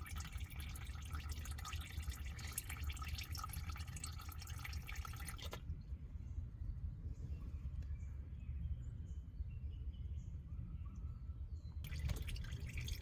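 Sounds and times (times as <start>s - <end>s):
oil pouring into a bucket: 0.0s - 5.6s, 11.8s - 13.0s
low steady rumble: 0.0s - 13.0s.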